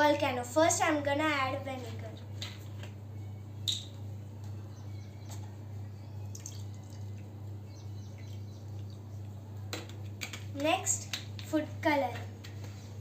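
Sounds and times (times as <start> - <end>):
steady low hum: 0.0 - 13.0
liquid trickling and dripping: 6.3 - 7.4, 8.0 - 9.3.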